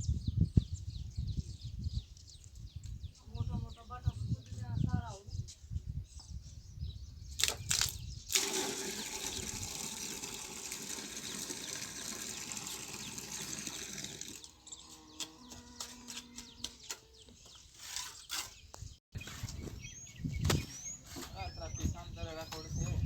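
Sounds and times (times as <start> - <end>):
water rushing: 8.3 - 14.4.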